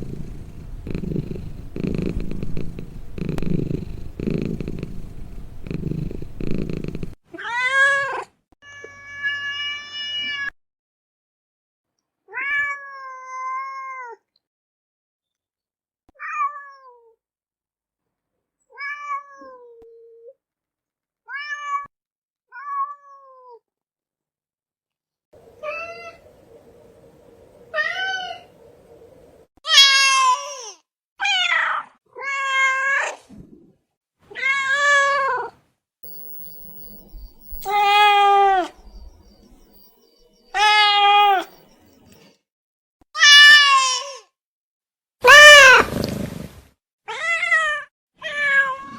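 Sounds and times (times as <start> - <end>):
cat purring: 0.0 - 7.2
cat meowing: 37.6 - 38.8, 40.5 - 41.5, 45.2 - 45.8, 47.1 - 48.9.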